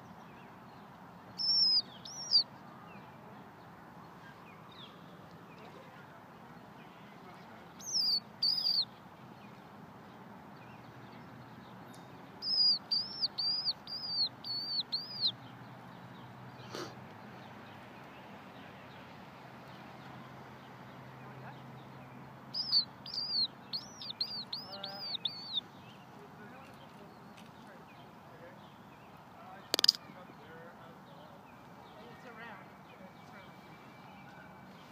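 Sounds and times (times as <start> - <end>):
faint outdoor background: 0.0 - 34.9
bird chirps: 0.1 - 3.1, 7.8 - 9.0, 11.9 - 15.6, 22.5 - 26.1, 27.9 - 30.2.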